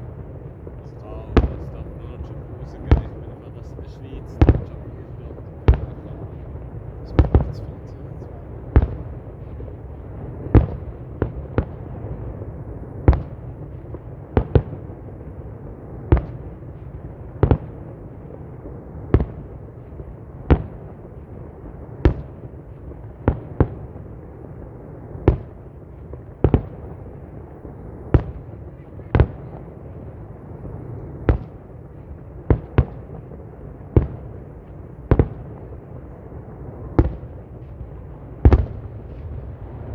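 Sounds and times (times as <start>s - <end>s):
continuous low rumble: 0.0s - 39.9s.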